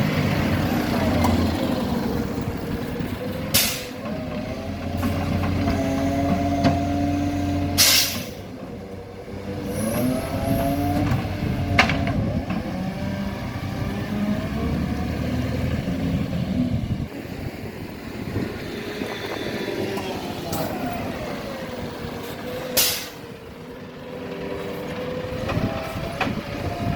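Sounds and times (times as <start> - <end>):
diesel engine running: 0.0 - 26.9
air hiss burst: 7.8 - 8.4, 22.8 - 23.2.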